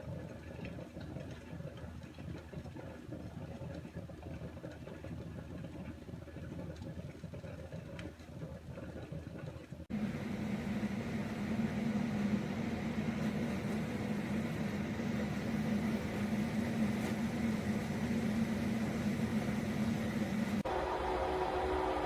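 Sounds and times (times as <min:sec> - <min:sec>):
coffee percolator humming and hissing: 0:09.9 - 0:22.0.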